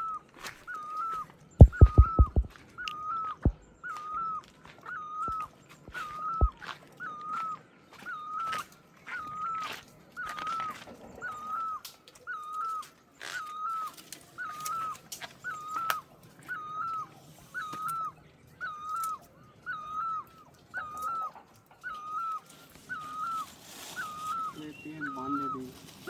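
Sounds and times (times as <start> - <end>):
animal whining call: 0.0 - 26.0
sharp clicks: 1.6 - 2.5.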